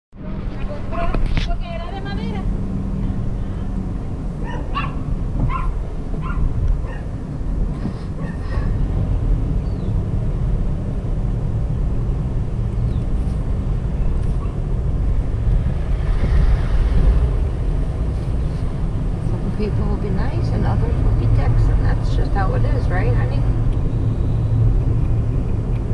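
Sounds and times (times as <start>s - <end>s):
car engine and road rumble: 0.2s - 25.9s
dog barking: 4.4s - 7.1s, 8.2s - 8.7s.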